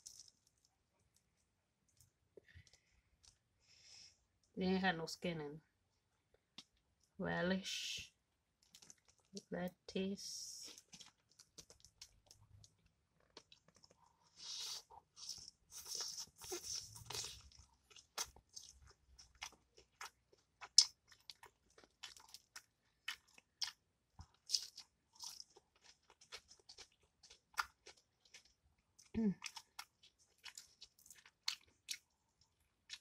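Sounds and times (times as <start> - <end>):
chewing with crunches: 0.0 - 1.2, 8.6 - 9.5, 10.7 - 33.0.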